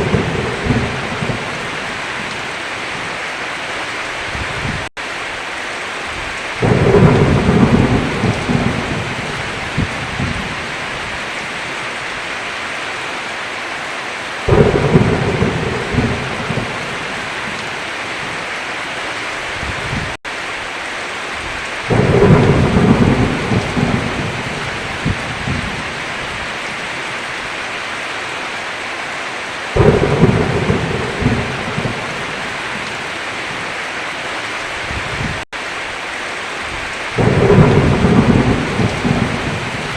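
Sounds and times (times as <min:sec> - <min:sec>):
thunder rolling: 0:00.0 - 0:02.4, 0:06.2 - 0:11.2, 0:14.5 - 0:17.6, 0:21.9 - 0:26.4, 0:29.8 - 0:33.0, 0:37.2 - 0:39.9
heavy rain: 0:00.0 - 0:39.9.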